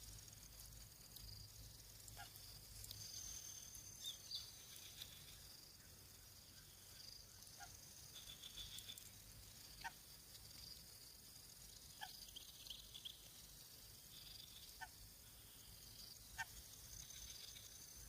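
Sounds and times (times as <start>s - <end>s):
high-pitched insect chirring: 7.0s - 9.9s, 10.5s - 18.0s.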